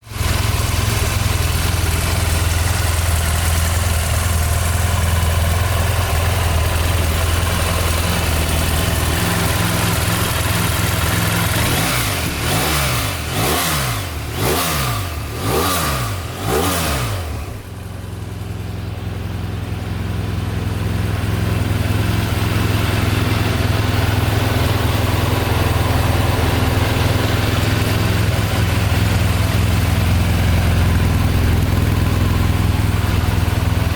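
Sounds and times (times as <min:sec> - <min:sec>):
motorcycle engine idling: 0:00.0 - 0:33.9
engine revving from throttle blips: 0:08.8 - 0:17.7.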